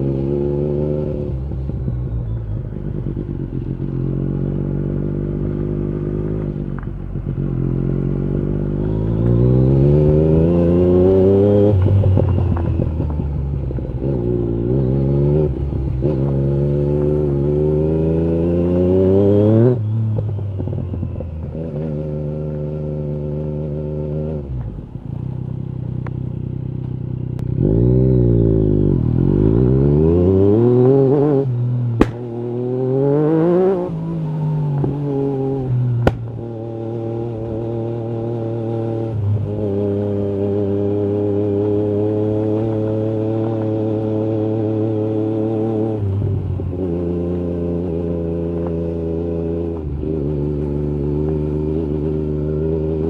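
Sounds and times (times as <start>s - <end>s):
motorcycle engine revving: 0.0s - 53.0s
exhaust cracks: 36.0s - 36.5s.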